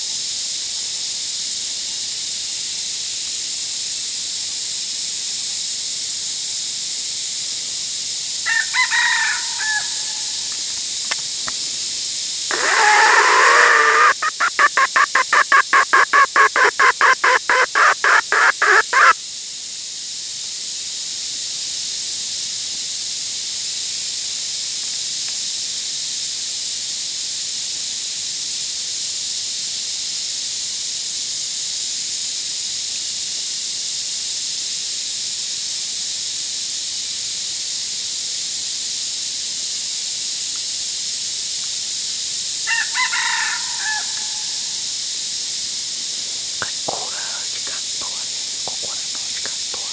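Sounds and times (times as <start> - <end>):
steady high hiss: 7.6 - 19.2, 41.6 - 49.9
rooster crowing and clucking: 8.4 - 10.9, 12.5 - 19.2, 42.6 - 44.8.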